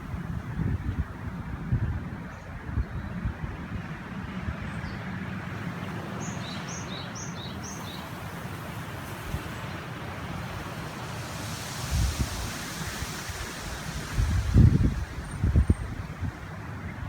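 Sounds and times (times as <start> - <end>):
wind buffeting microphone: 0.0 - 5.0, 5.7 - 17.0
river flowing: 5.3 - 17.0.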